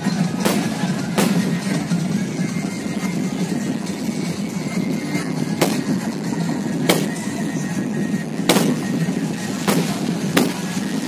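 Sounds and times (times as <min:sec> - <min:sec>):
background din: 0:00.2 - 0:11.0
fireworks bangs: 0:00.4 - 0:01.9, 0:05.5 - 0:06.1, 0:06.8 - 0:07.5, 0:08.4 - 0:11.0.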